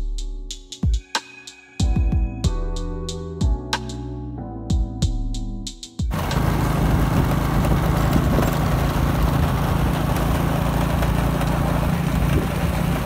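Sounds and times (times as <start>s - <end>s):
motorcycle engine running: 6.1s - 13.0s.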